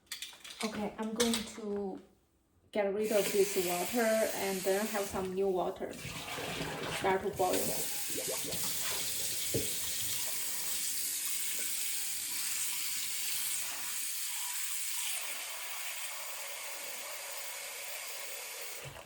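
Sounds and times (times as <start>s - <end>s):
tap running into sink: 6.1s - 10.4s
knock: 9.5s - 9.8s.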